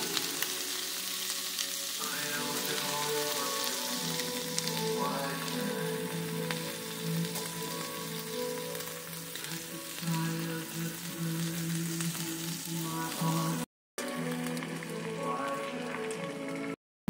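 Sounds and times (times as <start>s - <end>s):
background music with held notes: 0.0s - 16.8s
meat and onions sizzling: 0.0s - 16.8s.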